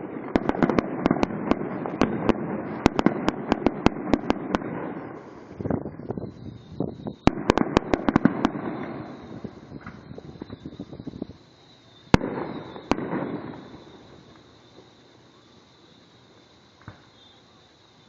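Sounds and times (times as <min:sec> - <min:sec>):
fireworks cracking and banging: 0:00.0 - 0:17.2
fireworks crackling: 0:00.0 - 0:18.0
faint high whistle: 0:05.0 - 0:07.4, 0:08.6 - 0:18.0.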